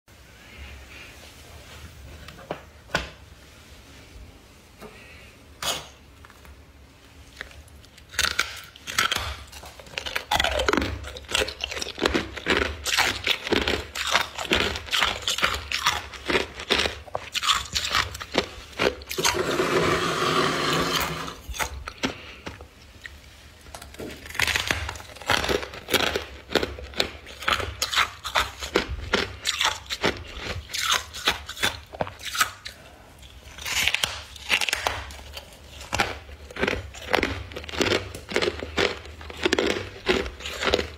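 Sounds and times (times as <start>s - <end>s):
ice scraping: 18.8s - 21.5s.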